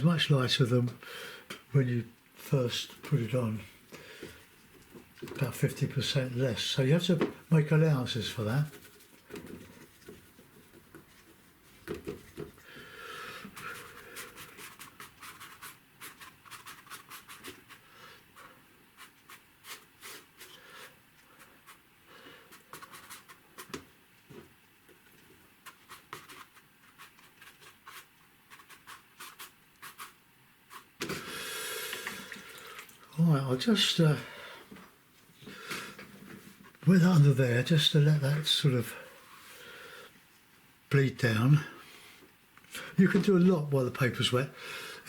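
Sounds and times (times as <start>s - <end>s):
paintbrush swishing on paper: 19.0s - 20.5s, 25.7s - 31.0s.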